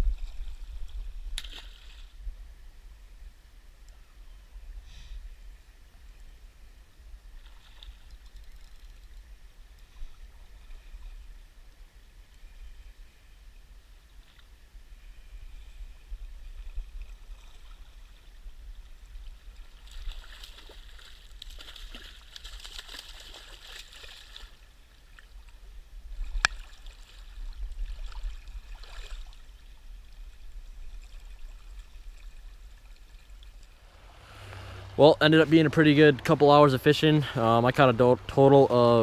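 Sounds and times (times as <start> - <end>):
river water running and trickling: 5.4 - 39.0
steady low rumble: 33.2 - 39.0.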